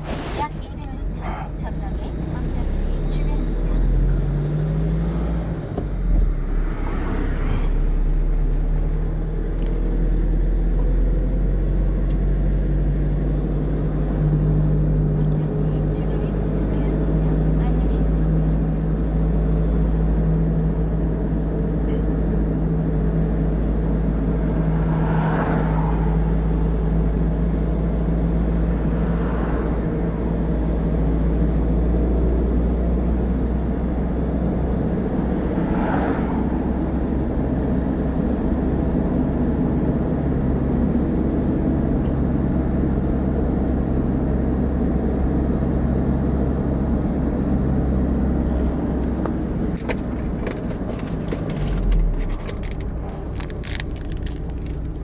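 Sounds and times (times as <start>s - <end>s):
vehicle engine and road noise: 0.0s - 55.0s.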